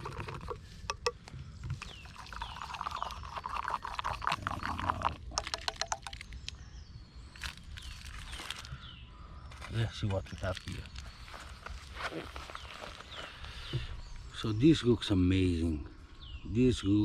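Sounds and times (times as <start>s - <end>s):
spoon stirring in a cup: 0.0s - 1.2s, 1.8s - 6.2s.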